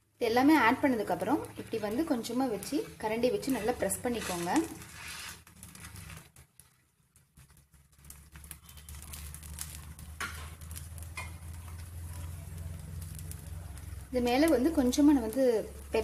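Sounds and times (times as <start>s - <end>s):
batter faintly sizzling: 0.0s - 16.0s
metal spatula pressing batter: 3.2s - 14.0s.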